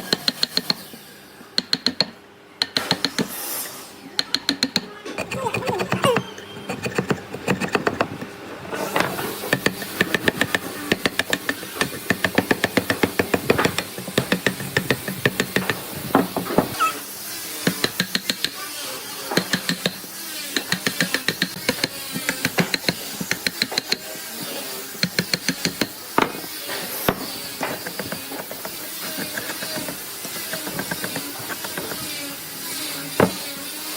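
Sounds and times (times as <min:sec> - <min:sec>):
hand tool knocking on wood: 0:04.2 - 0:08.3, 0:08.9 - 0:16.8, 0:19.4 - 0:20.0, 0:20.6 - 0:24.0, 0:25.0 - 0:26.4, 0:27.0 - 0:32.1.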